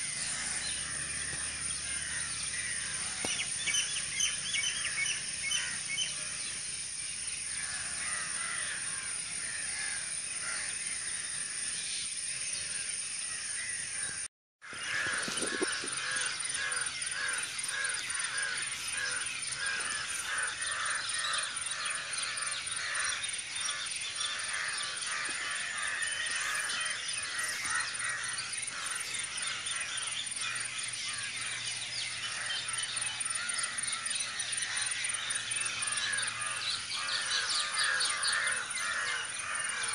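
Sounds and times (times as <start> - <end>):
other birds calling: 0.0 - 6.6, 12.6 - 39.9
crows cawing: 0.2 - 3.4, 7.5 - 10.7, 14.6 - 31.5, 32.2 - 39.9.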